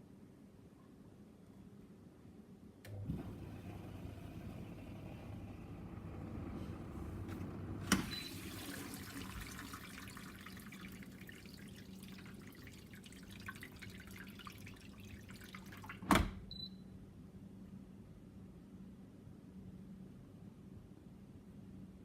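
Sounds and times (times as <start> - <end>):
dishwasher motor hum: 2.9 - 16.4
water splashing and dripping: 8.0 - 16.1.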